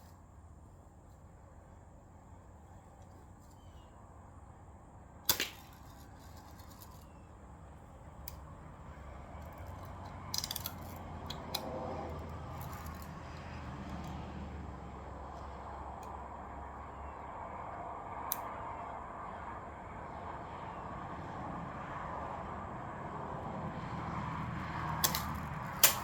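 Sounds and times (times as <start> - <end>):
bb gun firing: 5.3 - 5.8, 25.0 - 26.0.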